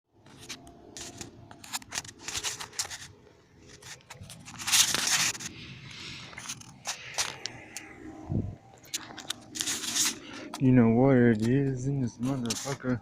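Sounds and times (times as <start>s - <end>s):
rustling and scraping handling: 0.2s - 13.0s
hissing rub: 8.9s - 10.6s.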